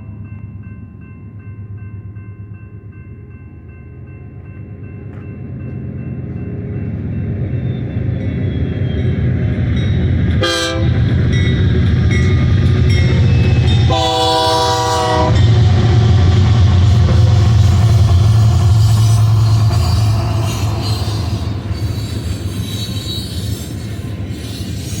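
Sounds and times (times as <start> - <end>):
diesel locomotive engine rumble: 0.0 - 25.0
wheel and rail noise: 4.5 - 25.0
train air horn: 10.4 - 11.0, 13.9 - 15.4.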